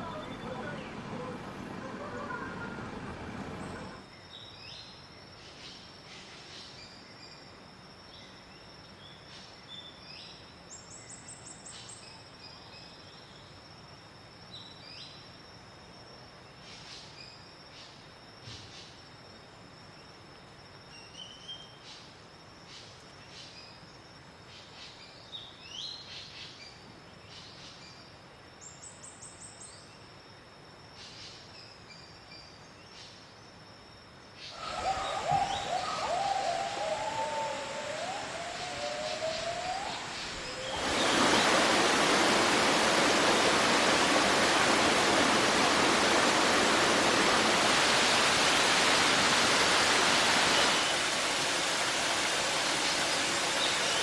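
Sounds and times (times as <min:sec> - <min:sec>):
high insect drone: 0:29.1 - 0:54.0.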